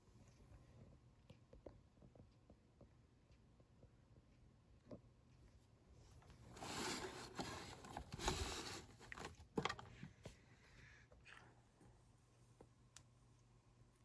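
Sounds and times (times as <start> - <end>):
faint low hum: 0.0 - 14.0
rustling and scraping: 6.1 - 10.4.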